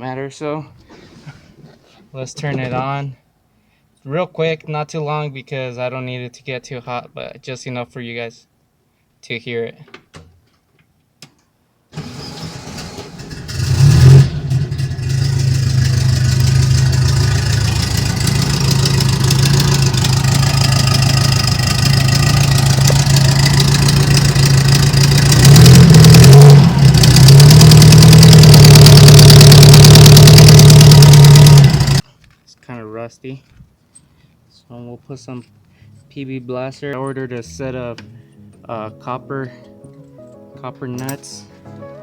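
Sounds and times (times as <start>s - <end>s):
car engine cranking and starting: 12.0s - 32.0s
engine running: 12.0s - 32.0s
exhaust ticking: 13.2s - 32.0s.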